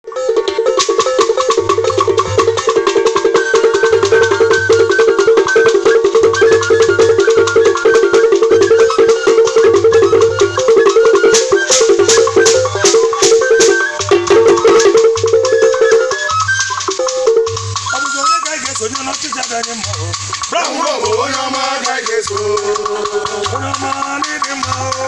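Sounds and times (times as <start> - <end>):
iron gongs struck rhythmically: 0.2 - 16.1
shaker rattles: 0.8 - 25.0.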